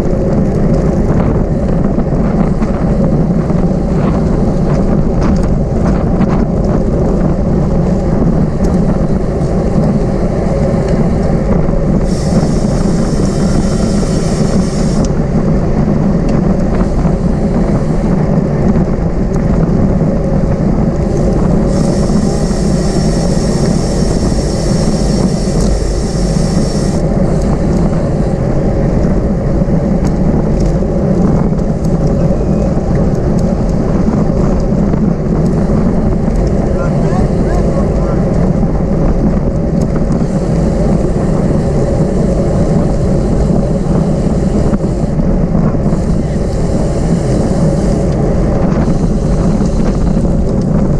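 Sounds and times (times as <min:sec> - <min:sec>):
bicycle tyre noise: 0:00.0 - 0:50.9
wind rush: 0:00.0 - 0:50.9
high buzzing sound: 0:12.0 - 0:15.4, 0:16.6 - 0:18.4, 0:21.1 - 0:28.4.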